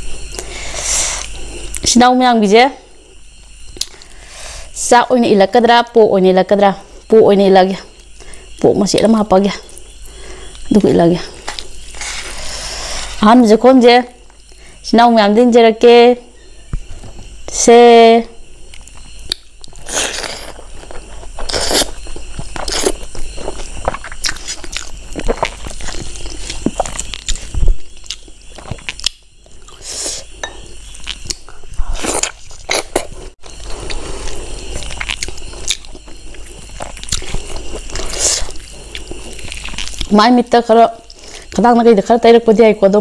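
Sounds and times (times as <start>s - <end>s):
person chewing food: 18.7s - 40.1s.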